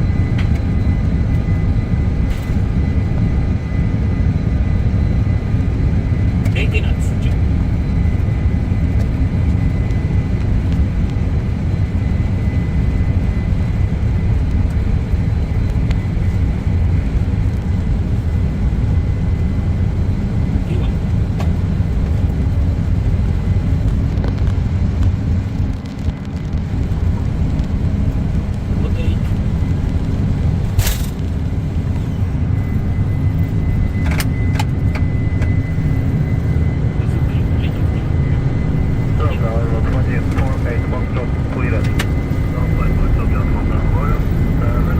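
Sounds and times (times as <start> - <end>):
jet engines rumbling: 0.0 - 44.9
faint high whine: 30.7 - 44.9.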